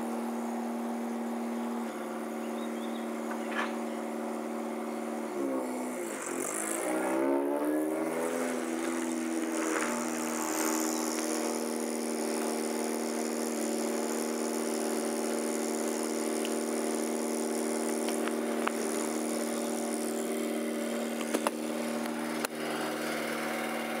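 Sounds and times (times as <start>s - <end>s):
car engine idling: 6.5s - 23.9s.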